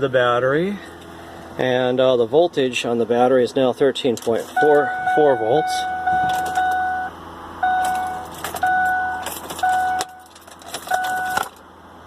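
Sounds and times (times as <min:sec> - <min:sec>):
dashboard warning chime: 0:04.5 - 0:11.5.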